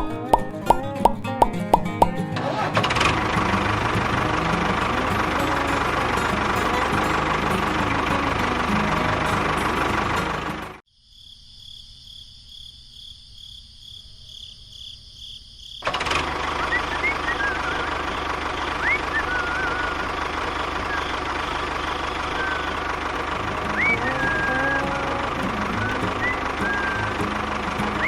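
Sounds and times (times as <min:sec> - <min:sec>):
short rising chirps: 0:16.5 - 0:20.2, 0:20.8 - 0:22.9.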